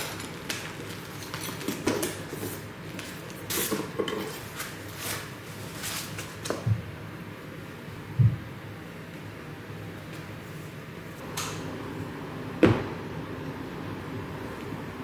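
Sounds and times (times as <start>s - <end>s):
dull thump: 12.6s - 13.0s.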